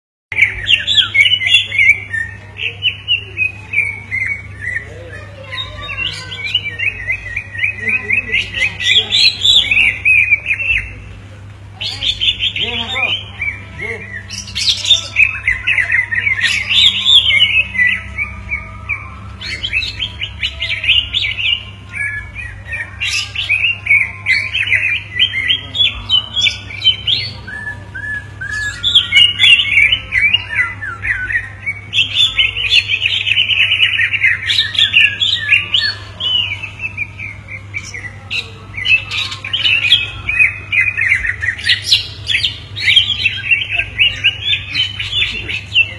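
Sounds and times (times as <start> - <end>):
birds chattering song: 0.3 - 45.9
steady low hum: 0.3 - 45.9.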